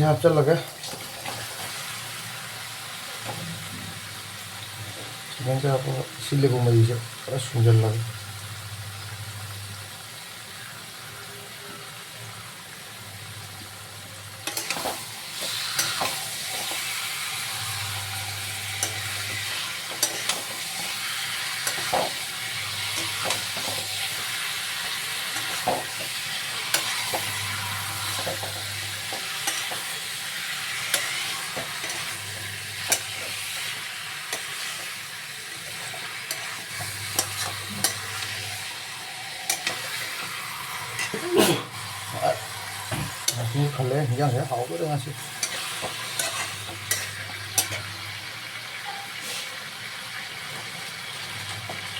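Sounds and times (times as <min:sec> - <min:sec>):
chicken sizzling in a pan: 0:00.0 - 0:51.9
spatula scraping a pan: 0:14.4 - 0:38.7, 0:45.2 - 0:48.0, 0:48.9 - 0:49.6.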